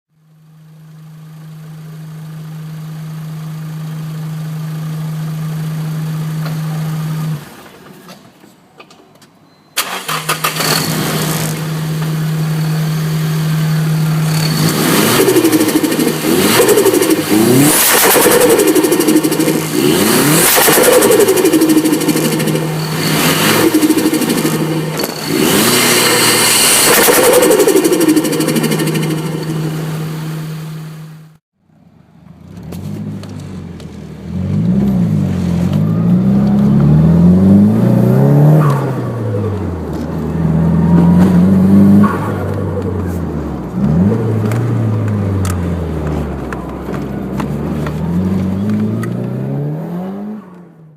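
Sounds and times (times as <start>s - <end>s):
car engine revving: 9.8s - 31.4s, 32.2s - 50.9s.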